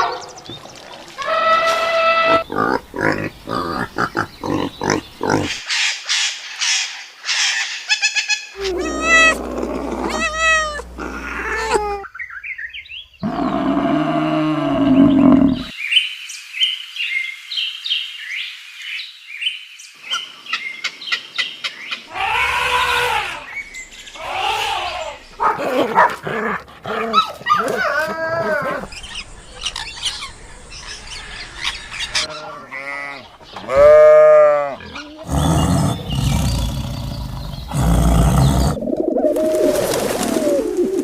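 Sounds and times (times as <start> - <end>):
low drawn-out animal call: 8.6 - 12.1, 13.2 - 15.7, 32.2 - 38.9
repeated pitched animal cries: 8.6 - 12.1.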